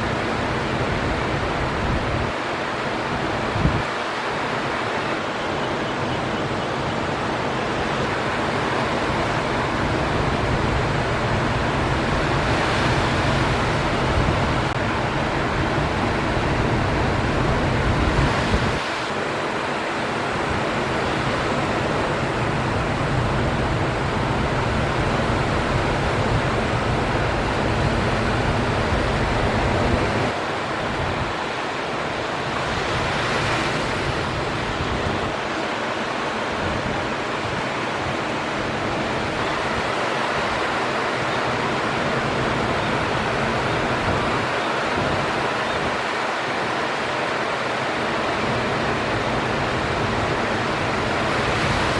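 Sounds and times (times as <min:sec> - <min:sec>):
wind rumble on microphone: 0:00.0 - 0:05.4, 0:06.0 - 0:46.3
ocean surf washing: 0:00.0 - 0:51.9.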